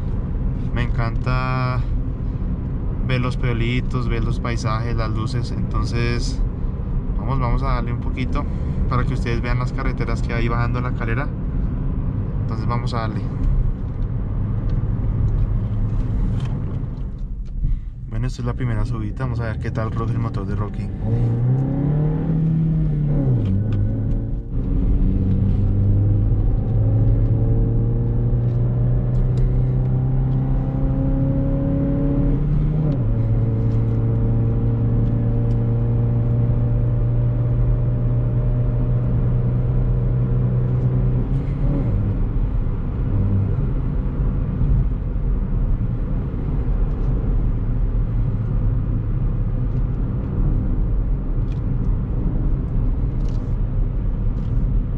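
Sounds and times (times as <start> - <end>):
car engine accelerating uphill: 19.5 - 54.9.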